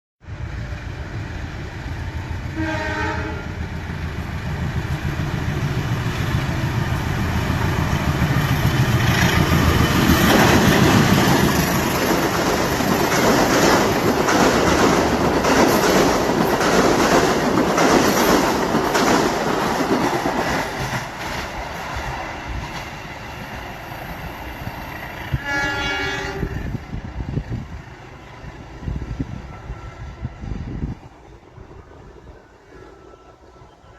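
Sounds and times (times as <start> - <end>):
train horn: 2.5 - 3.6, 25.2 - 26.8
train wheels clattering: 7.7 - 23.1.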